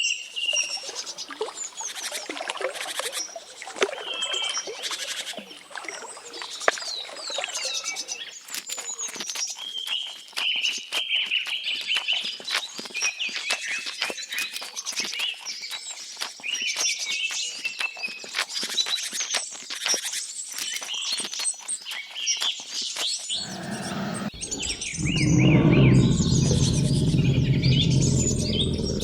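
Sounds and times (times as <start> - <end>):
birds chirping and singing: 23.4 - 29.0
loud low sound: 23.4 - 29.0
sharp clicks: 23.4 - 29.0.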